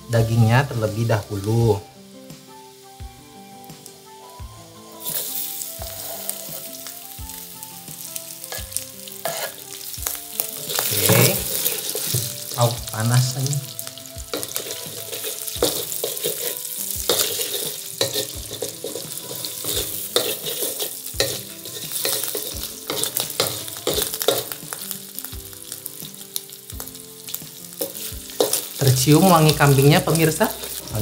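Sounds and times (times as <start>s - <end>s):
food sizzling in hot oil: 0.0s - 31.0s
wooden spatula scraping a pan: 8.5s - 9.6s, 10.4s - 12.6s, 14.3s - 24.6s.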